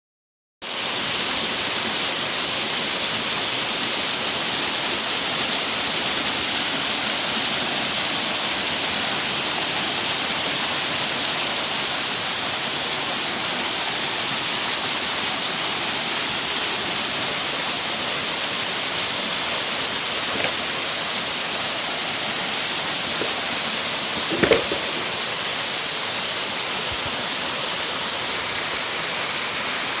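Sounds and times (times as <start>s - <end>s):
waterfall rushing: 0.6s - 30.0s
short thump: 24.2s - 25.2s.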